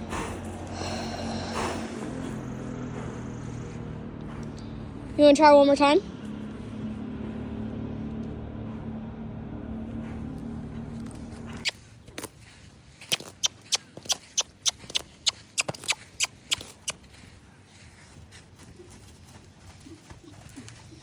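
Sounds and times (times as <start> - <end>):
tongue clicks: 13.0 - 17.0.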